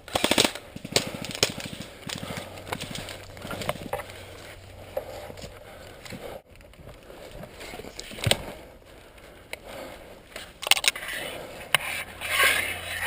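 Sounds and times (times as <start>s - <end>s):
footsteps crunching through brush: 0.2s - 6.4s.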